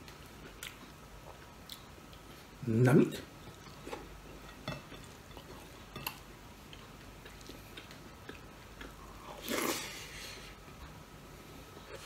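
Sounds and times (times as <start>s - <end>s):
quiet chewing: 0.0s - 2.6s, 3.4s - 12.0s.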